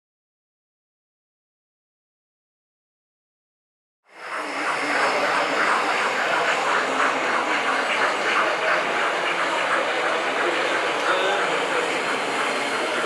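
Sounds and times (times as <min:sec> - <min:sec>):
indoor crowd hubbub: 0:04.1 - 0:13.0.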